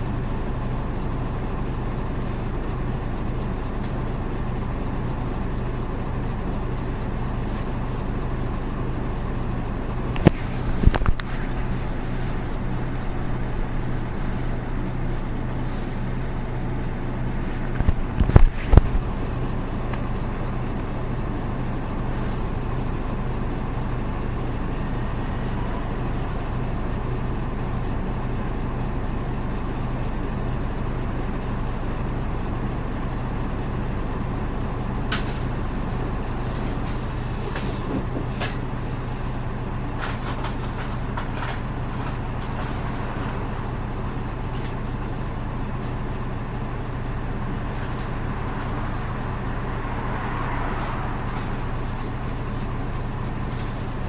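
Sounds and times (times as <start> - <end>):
bus diesel engine humming: 0.0 - 54.0.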